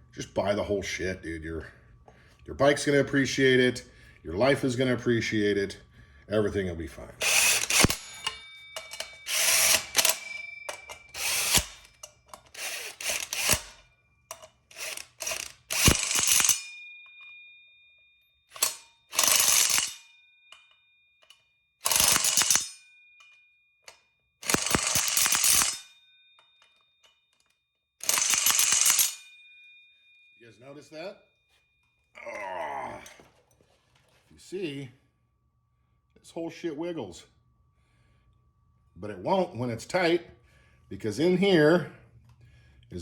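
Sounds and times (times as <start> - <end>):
ratchet wrench clicking: 7.2 - 16.7, 18.5 - 20.0, 21.2 - 22.7, 24.4 - 25.8, 28.0 - 29.2.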